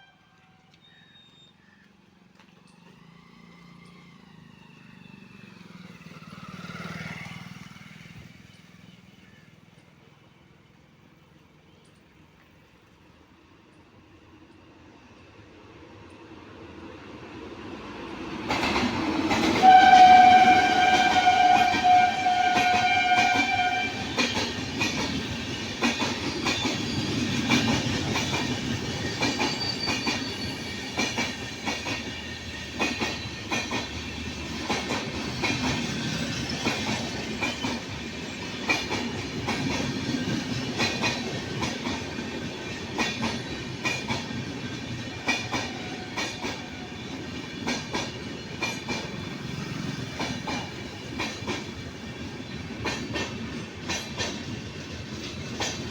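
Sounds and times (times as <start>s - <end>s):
train wheels clickety-clack: 17.4s - 55.9s
train horn blast: 19.4s - 24.4s.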